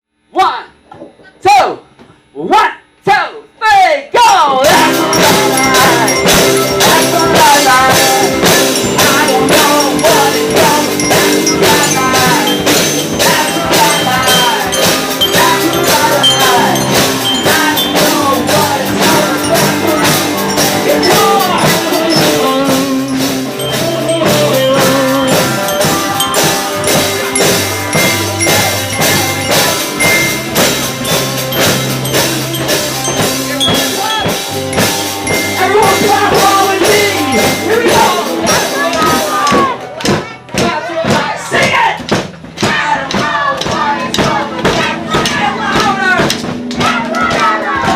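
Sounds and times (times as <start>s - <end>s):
drum kit beat: 4.2s - 47.9s
live rock band playing: 4.6s - 40.5s.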